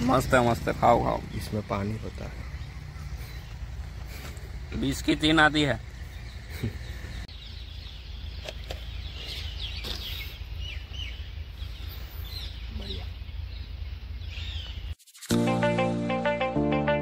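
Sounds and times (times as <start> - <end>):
low outdoor rumble: 0.0 - 14.9
birds chirping: 0.0 - 15.8.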